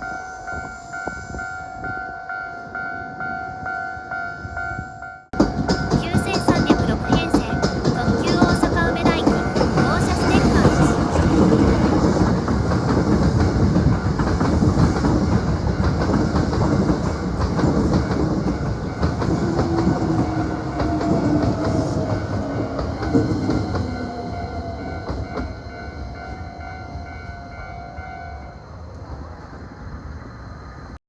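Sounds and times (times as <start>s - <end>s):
electric train passing: 0.0s - 31.0s
wheels clattering over rail joints: 7.6s - 24.0s.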